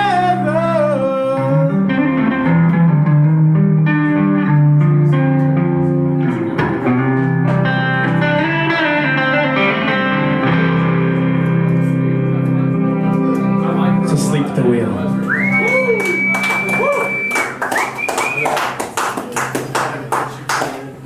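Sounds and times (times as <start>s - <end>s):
electric guitar: 0.0s - 18.4s
live band instrumental: 2.0s - 14.0s.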